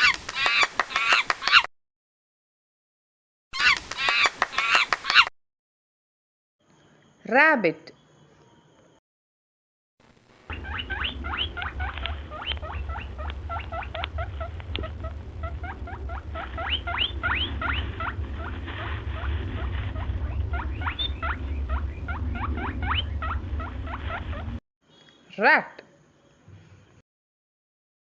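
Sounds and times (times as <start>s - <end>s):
rabbit squeaking: 0.0s - 1.7s, 3.6s - 5.3s, 10.5s - 24.6s
steady low rumble: 10.0s - 24.6s.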